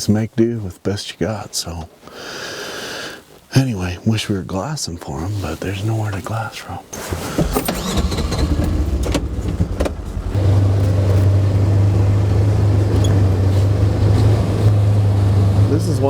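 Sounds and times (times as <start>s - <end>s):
engine and road drone: 7.0s - 16.0s
knocks and rattles: 8.4s - 11.4s.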